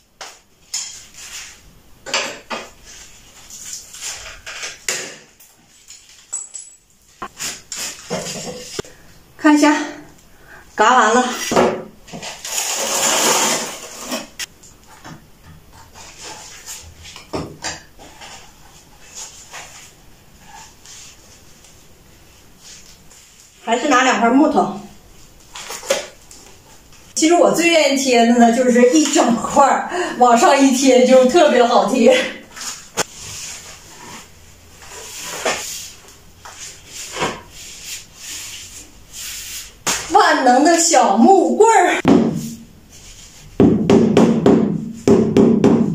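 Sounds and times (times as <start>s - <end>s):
loud scraping: 12.4s - 14.5s.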